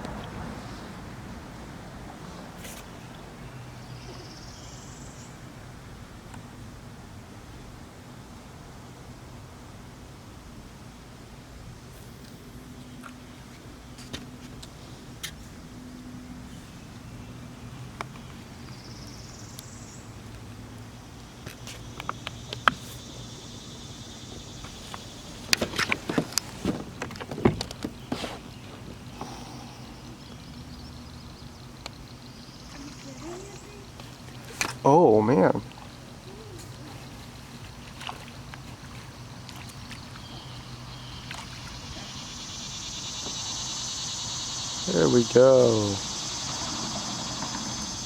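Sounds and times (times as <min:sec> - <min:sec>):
steady low hum: 0:00.0 - 0:48.0
water sounds: 0:29.0 - 0:48.0
faint insect buzz: 0:29.1 - 0:30.8, 0:31.8 - 0:38.2, 0:39.6 - 0:48.0
high insect-like drone: 0:40.8 - 0:48.0.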